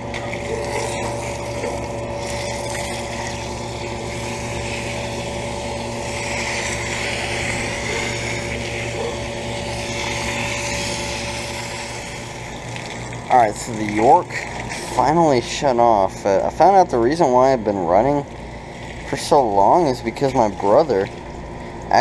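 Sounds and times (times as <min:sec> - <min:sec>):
fan whooshing: 0:00.0 - 0:16.6
compressor hum: 0:00.0 - 0:22.0.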